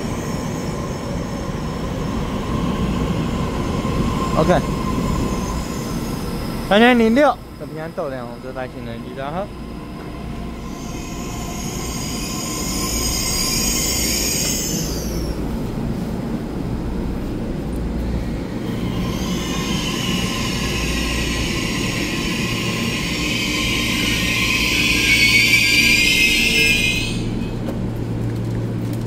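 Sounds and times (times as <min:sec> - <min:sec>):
train wheels rumbling: 0:00.0 - 0:29.0
high-pitched wheel squealing: 0:10.6 - 0:15.4, 0:18.8 - 0:27.5.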